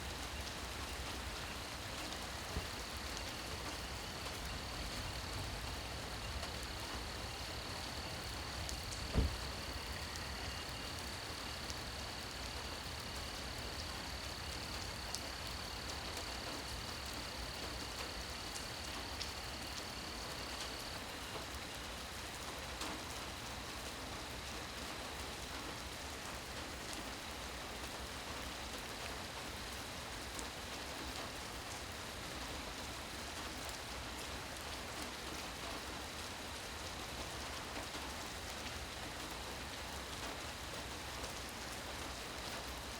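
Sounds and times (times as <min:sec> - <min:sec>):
rain falling: 0:00.0 - 0:42.9
high insect call: 0:00.2 - 0:21.6
low thump: 0:09.1 - 0:09.7.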